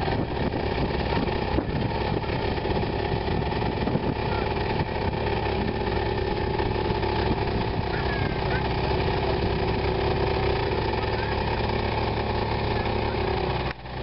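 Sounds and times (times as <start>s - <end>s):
car engine running steadily: 0.0s - 14.0s.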